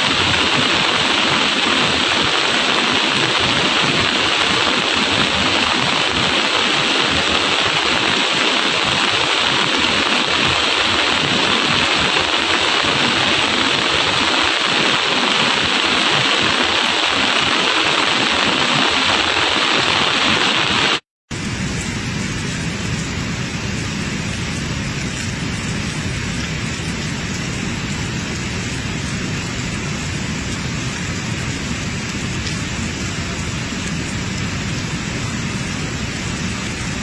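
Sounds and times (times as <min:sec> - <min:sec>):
heavy rain: 0:00.0 - 0:37.0.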